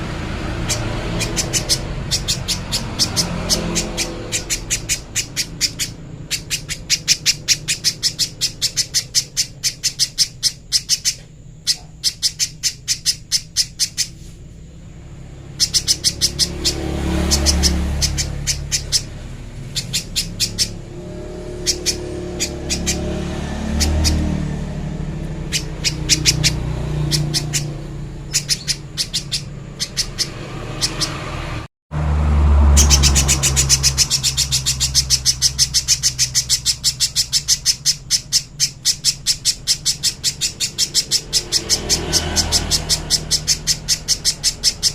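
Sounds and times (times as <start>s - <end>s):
bird calling high chip notes: 0.0s - 31.6s, 32.6s - 44.9s
low rumbles: 12.8s - 38.3s.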